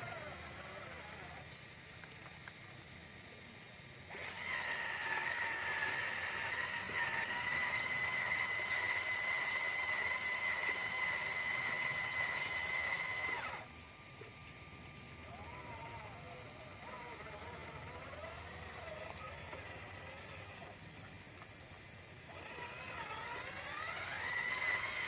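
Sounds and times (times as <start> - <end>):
small electric motor whining: 0.0 - 2.4, 4.0 - 25.0
faint chirps: 0.1 - 14.3.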